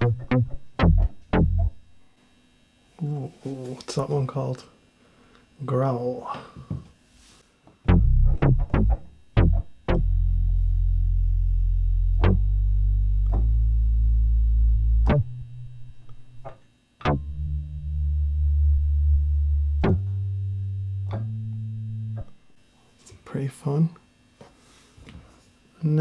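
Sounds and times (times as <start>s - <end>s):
low synth bass notes: 0.0s - 2.0s, 7.9s - 22.6s.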